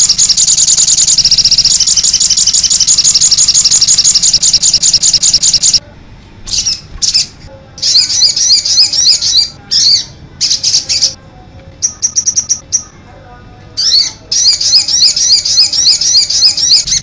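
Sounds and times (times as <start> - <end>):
small bird singing high trills: 0.0 - 5.8, 13.8 - 17.0.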